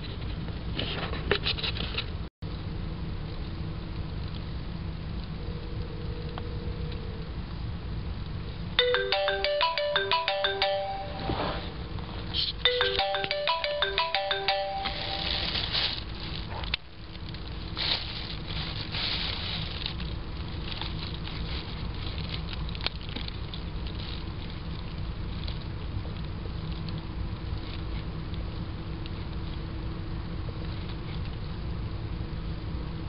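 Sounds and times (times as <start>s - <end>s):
low rumble and hiss: 0.0s - 33.0s
melodic phone ringtone: 8.8s - 11.8s, 12.7s - 15.6s.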